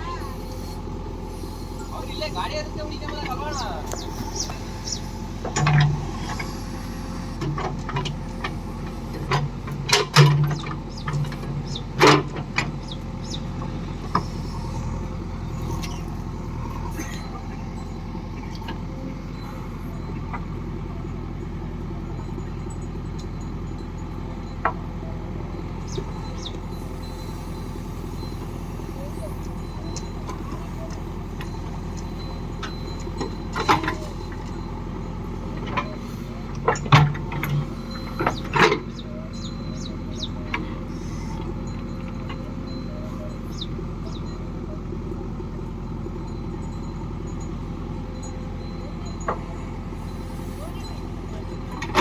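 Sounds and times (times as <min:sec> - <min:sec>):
diesel engine running: 0:00.0 - 0:52.0
metallic knocks and clanks: 0:36.6 - 0:39.0.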